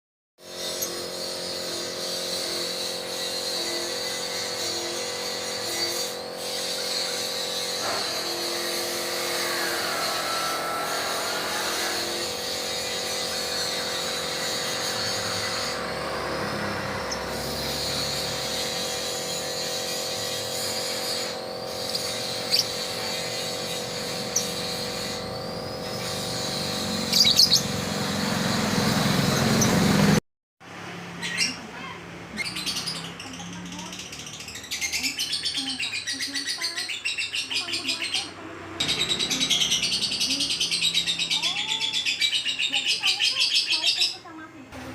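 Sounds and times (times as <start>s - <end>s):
lovebirds chirping: 21.6s - 28.4s, 32.3s - 44.3s.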